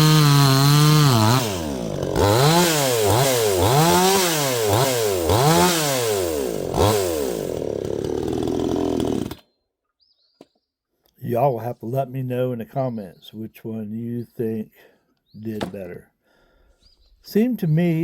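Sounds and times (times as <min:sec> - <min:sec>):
chainsaw revving: 0:00.0 - 0:09.4.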